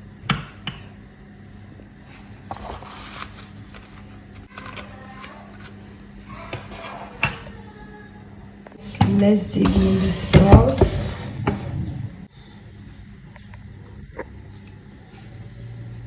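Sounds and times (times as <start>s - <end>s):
low hum: 8.8s - 16.0s.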